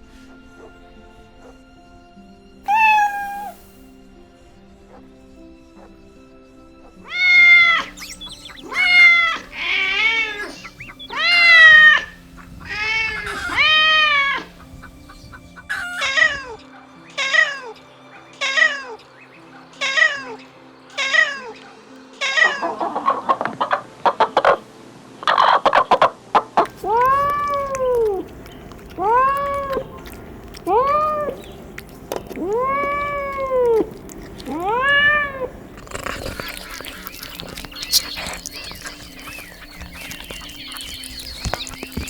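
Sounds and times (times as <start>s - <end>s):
kittens meowing: 2.7s - 3.8s, 7.1s - 16.6s, 26.7s - 42.0s.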